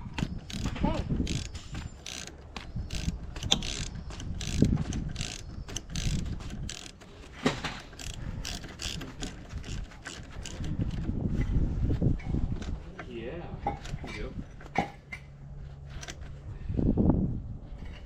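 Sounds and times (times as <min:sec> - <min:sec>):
hand tools clicking: 0:00.0 - 0:11.1.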